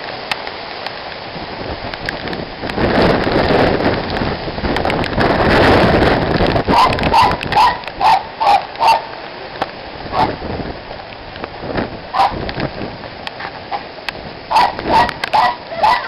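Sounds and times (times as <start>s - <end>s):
rain hiss: 0.0s - 16.0s
dog barking: 6.7s - 9.1s, 10.1s - 10.4s, 12.1s - 12.4s, 14.5s - 16.0s.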